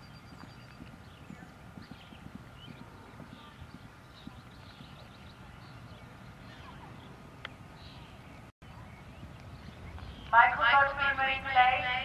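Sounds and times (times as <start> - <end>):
horse hoofbeats on turf: 0.0 - 6.0.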